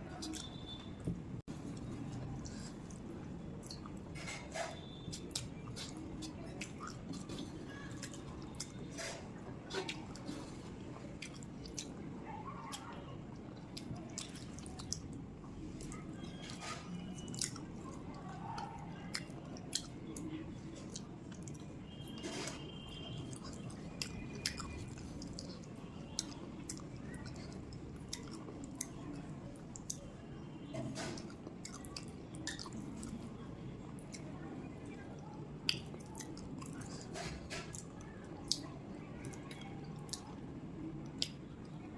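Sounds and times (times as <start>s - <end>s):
person chewing food: 0.1s - 30.1s, 30.9s - 33.3s, 35.6s - 38.7s, 39.3s - 40.4s
mouth smacks and clicks: 30.7s - 33.2s, 35.6s - 38.7s, 41.1s - 41.4s.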